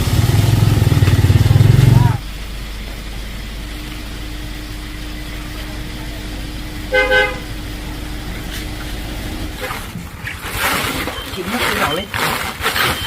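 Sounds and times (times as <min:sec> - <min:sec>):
steady low hum: 0:00.0 - 0:10.8
vehicle horn toots: 0:06.5 - 0:08.1.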